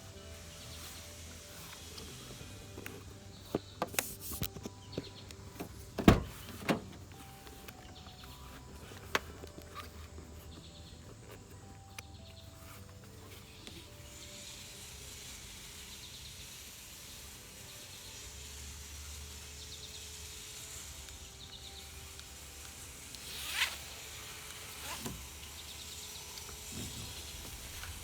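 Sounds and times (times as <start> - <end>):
faint steady background noise: 0.0 - 28.0
strap zipping through buckle: 23.2 - 27.9.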